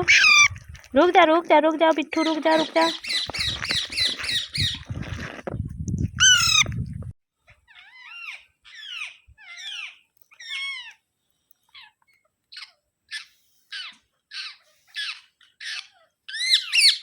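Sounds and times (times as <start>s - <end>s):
parrot squawking: 0.0s - 0.6s, 6.2s - 6.7s, 7.8s - 10.9s, 12.6s - 17.0s.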